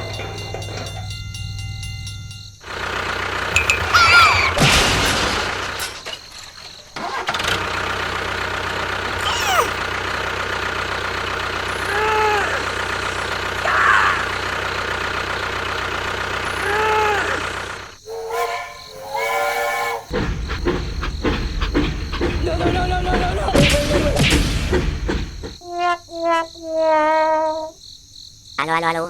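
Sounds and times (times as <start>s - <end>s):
engine-like hum: 0.0s - 25.6s
short arching tones: 9.0s - 22.5s.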